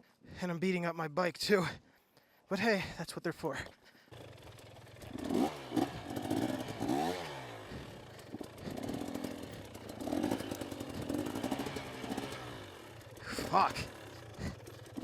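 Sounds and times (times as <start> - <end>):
dirt bike engine revving: 3.6 - 15.0.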